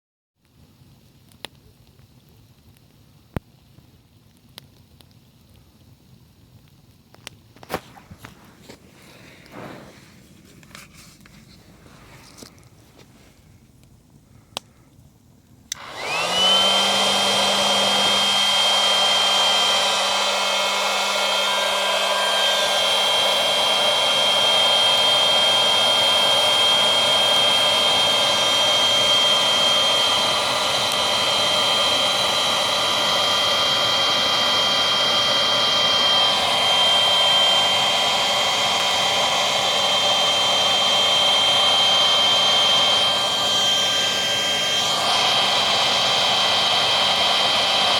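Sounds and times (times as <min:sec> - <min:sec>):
electric air pump whine: 0:07.6 - 0:13.4, 0:15.7 - 0:47.9.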